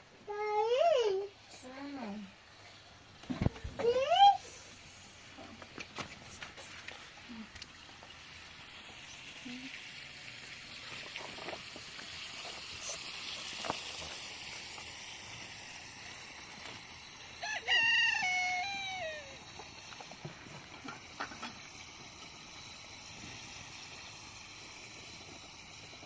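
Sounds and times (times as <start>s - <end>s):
faint steady hiss: 0.0s - 26.0s
rooster crowing: 17.4s - 19.4s.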